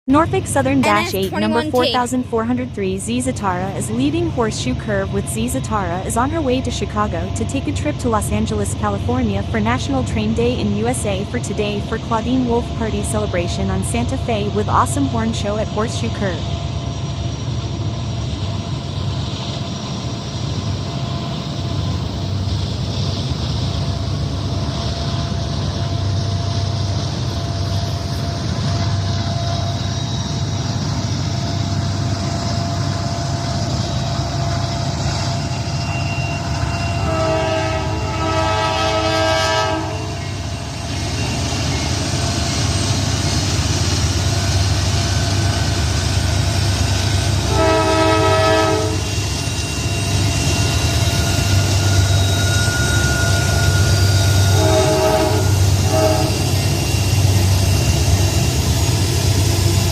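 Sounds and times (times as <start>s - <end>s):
diesel locomotives rumbling: 0.1s - 59.9s
train air horn toots: 36.6s - 40.4s, 47.4s - 49.2s, 51.8s - 57.0s.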